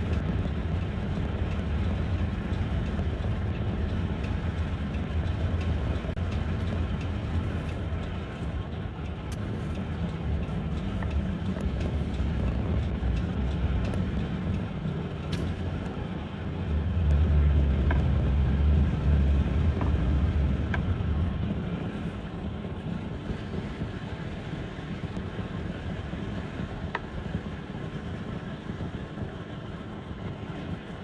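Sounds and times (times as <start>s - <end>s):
engine and road rumble: 0.0s - 31.0s.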